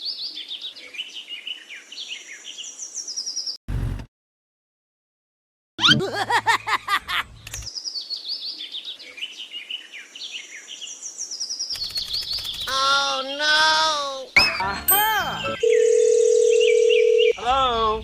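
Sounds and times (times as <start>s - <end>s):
birds chirping and singing: 0.0s - 3.6s, 7.4s - 15.8s.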